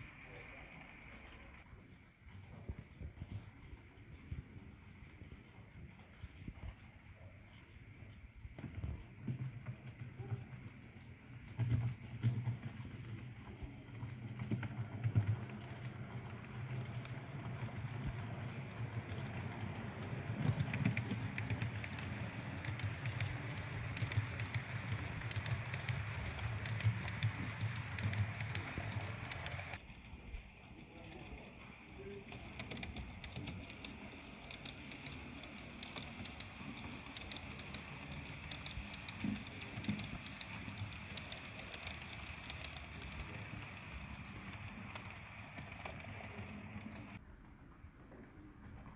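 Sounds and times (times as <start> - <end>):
light clicks of train: 0.0 - 48.9
model train motor humming: 12.9 - 47.2.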